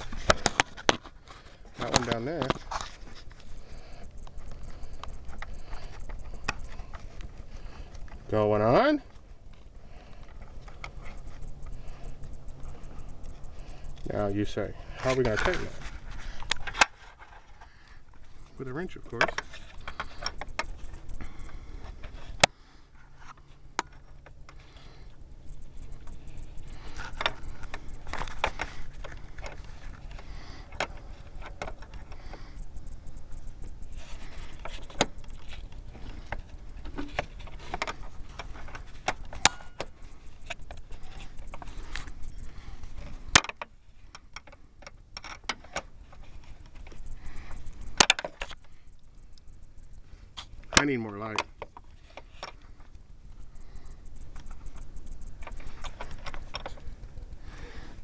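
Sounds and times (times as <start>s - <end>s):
sharp metallic clicks: 0.0s - 22.6s, 23.2s - 58.0s.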